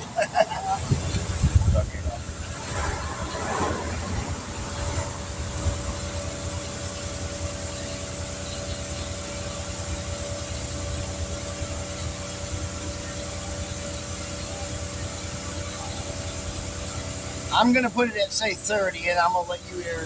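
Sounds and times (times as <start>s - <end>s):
air compressor humming and hissing: 0.0s - 20.0s.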